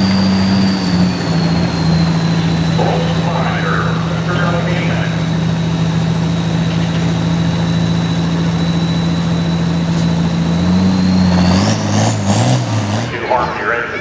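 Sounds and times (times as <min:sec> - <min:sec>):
high-pitched whine: 0:00.0 - 0:14.0
tractor diesel engine running: 0:00.0 - 0:14.0.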